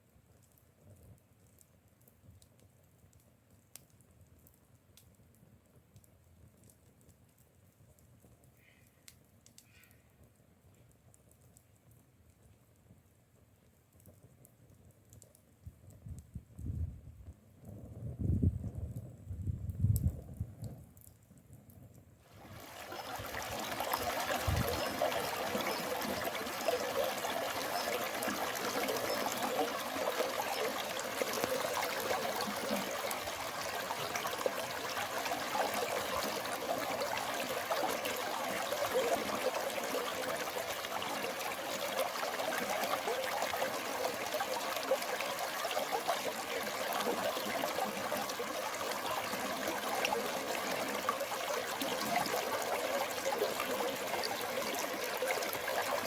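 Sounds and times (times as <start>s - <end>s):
stream water flowing: 22.3s - 56.0s.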